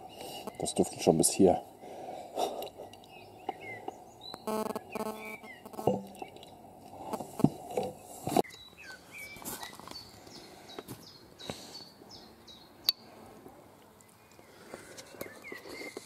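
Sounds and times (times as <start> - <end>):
birds chirping: 0.0 - 16.0
sharp clicks: 4.3 - 6.4.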